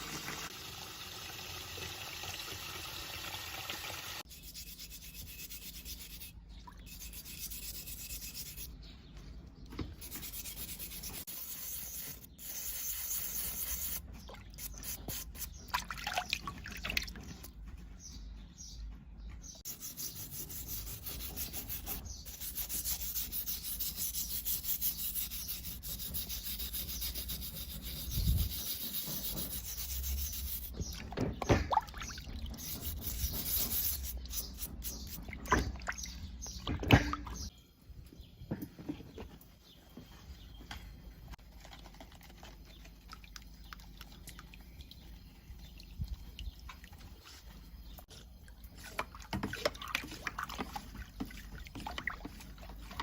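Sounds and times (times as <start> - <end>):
abrasive rasping on rusty metal: 4.3 - 8.7, 10.0 - 15.6, 19.7 - 30.9, 32.5 - 35.2.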